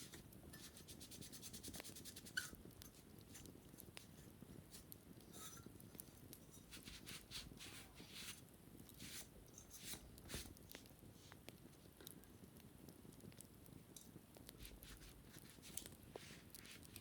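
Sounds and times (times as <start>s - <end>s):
scratching on wicker basket: 0.0s - 5.7s, 6.6s - 11.4s, 14.6s - 17.0s.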